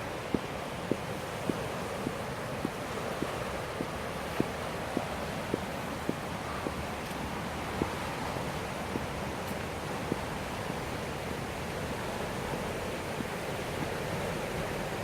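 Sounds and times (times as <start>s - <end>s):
river water rushing: 0.0s - 15.0s
faint ticks: 0.3s - 8.0s, 13.2s - 14.0s.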